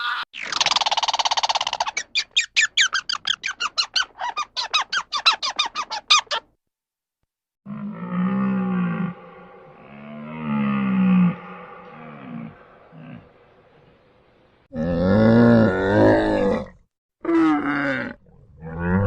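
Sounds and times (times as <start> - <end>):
animal squeaky chirping: 0.0 - 6.5
deep drawn-out animal call: 7.6 - 19.0.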